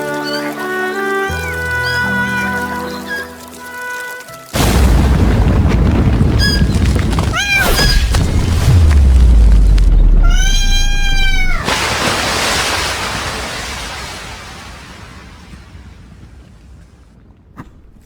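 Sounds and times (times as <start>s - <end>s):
cat meowing: 0.0s - 3.4s, 7.3s - 8.2s, 10.2s - 11.7s
deep boom: 4.6s - 11.7s.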